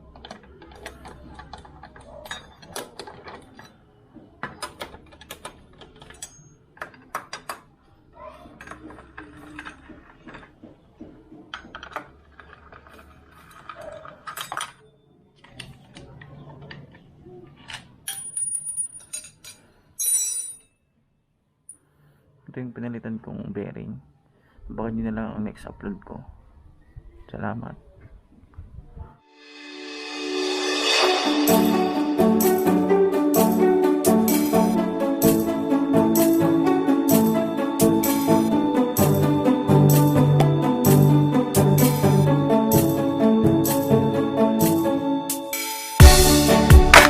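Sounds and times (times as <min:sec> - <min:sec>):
metal tools and bolts clinking: 0:00.6 - 0:03.8, 0:06.0 - 0:07.1, 0:18.0 - 0:20.8.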